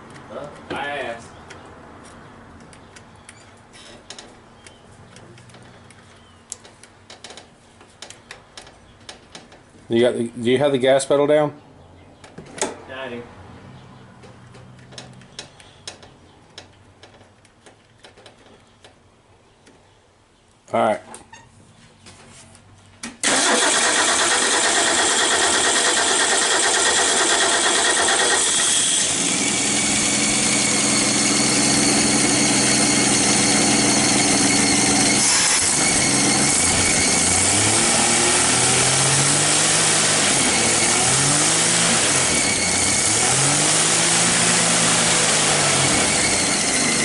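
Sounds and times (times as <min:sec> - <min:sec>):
car engine starting and revving: 0:23.2 - 0:47.0.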